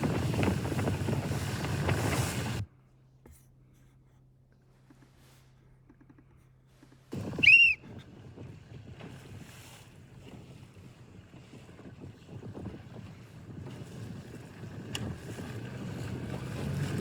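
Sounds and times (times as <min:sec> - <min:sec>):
water rushing around boat: 0:00.0 - 0:02.6, 0:07.1 - 0:17.0
wind buffeting microphone: 0:00.0 - 0:02.6, 0:07.2 - 0:17.0.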